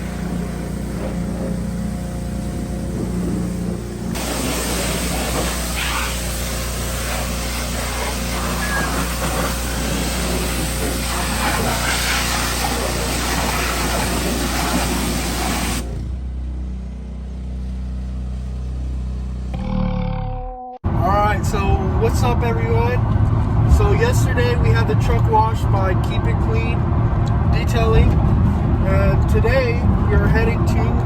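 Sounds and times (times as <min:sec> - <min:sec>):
spraying hiss: 0:00.0 - 0:15.9
low engine hum: 0:00.0 - 0:31.0.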